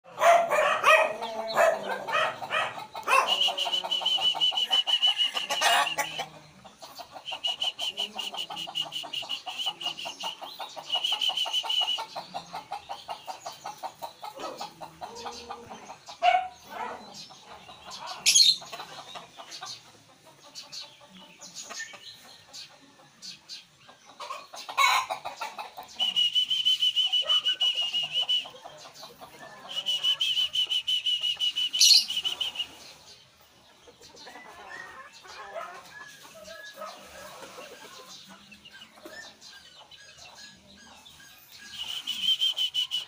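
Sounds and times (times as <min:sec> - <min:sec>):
birds clucking and chattering: 0:00.0 - 0:43.0
sharp bird calls: 0:00.1 - 0:43.0
high bird trill: 0:29.6 - 0:32.8.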